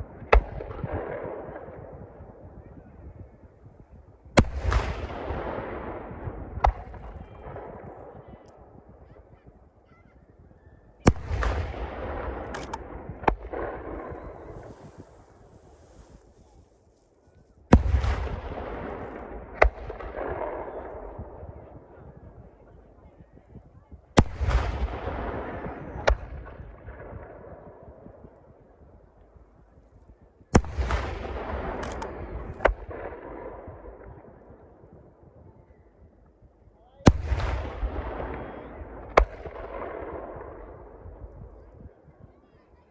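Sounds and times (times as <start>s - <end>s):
firework bangs: 11.2s - 16.4s
firework shells bursting: 12.4s - 13.6s, 31.8s - 33.0s
small firework cracks: 12.6s - 20.9s.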